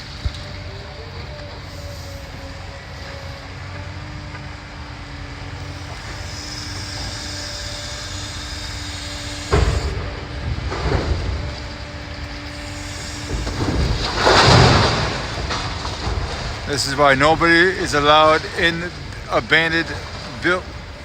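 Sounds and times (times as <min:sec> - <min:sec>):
demolition machinery drone: 0:00.0 - 0:21.0
debris crashing down: 0:09.5 - 0:21.0
rubble clattering: 0:10.0 - 0:21.0.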